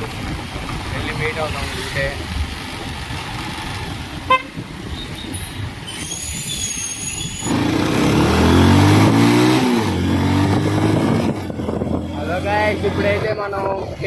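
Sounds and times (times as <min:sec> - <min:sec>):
wind and road noise: 0:00.0 - 0:14.0
motorcycle engine accelerating: 0:07.5 - 0:13.4.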